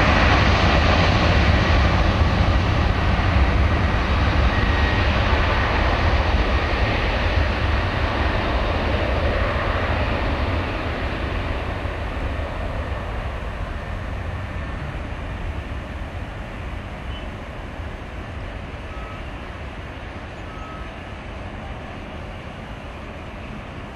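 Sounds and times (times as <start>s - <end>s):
jet engines rumbling: 0.0s - 23.9s
faint high whine: 18.6s - 22.9s.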